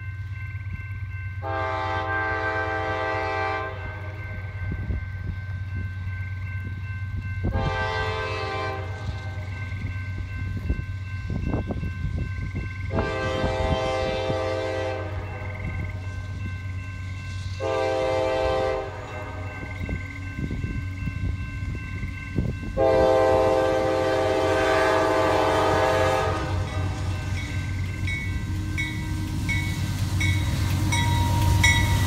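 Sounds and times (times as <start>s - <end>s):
train wheels clacking on rails: 0.0s - 32.0s
locomotive horn blasts: 1.4s - 4.4s, 7.5s - 9.5s, 12.9s - 15.9s, 17.6s - 19.9s, 22.8s - 27.4s.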